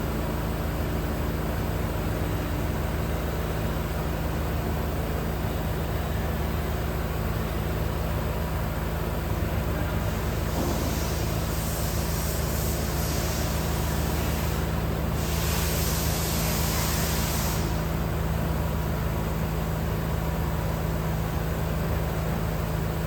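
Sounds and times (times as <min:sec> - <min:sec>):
heavy vehicle engine running: 0:00.0 - 0:23.0
loud hiss: 0:10.2 - 0:18.0.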